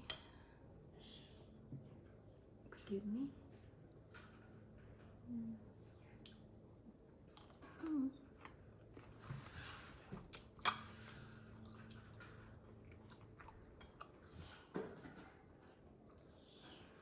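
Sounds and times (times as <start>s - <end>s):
chewing and mouth sounds: 7.2s - 9.1s, 11.4s - 14.7s.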